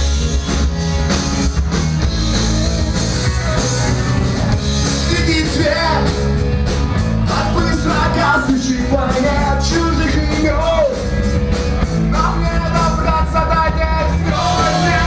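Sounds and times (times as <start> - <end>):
punk rock band playing: 0.0 - 15.0
person singing: 12.2 - 15.0.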